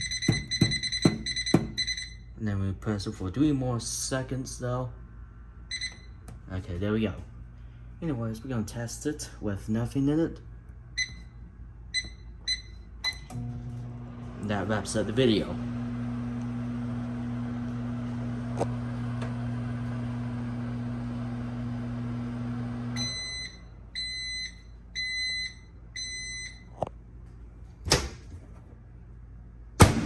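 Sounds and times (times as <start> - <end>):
microwave oven humming: 10.4 - 30.0.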